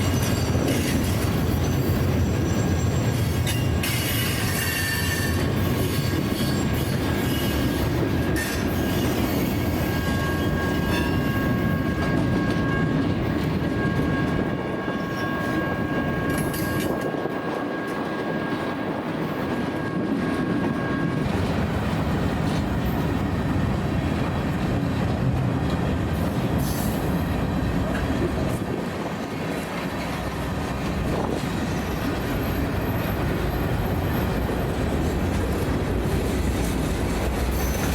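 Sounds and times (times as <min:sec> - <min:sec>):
train wheels rumbling on rail: 0:00.0 - 0:37.9
high-pitched wheel squeal: 0:03.8 - 0:07.8, 0:08.4 - 0:17.0.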